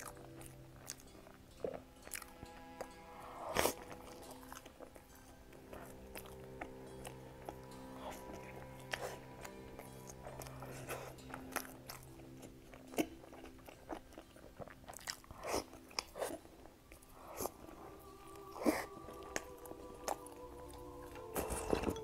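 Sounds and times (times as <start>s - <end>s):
person chewing pastry: 0.0s - 22.0s.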